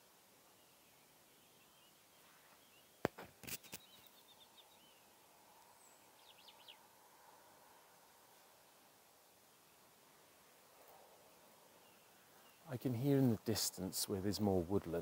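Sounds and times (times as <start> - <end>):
songbird chirps and trill: 0.0 - 13.9.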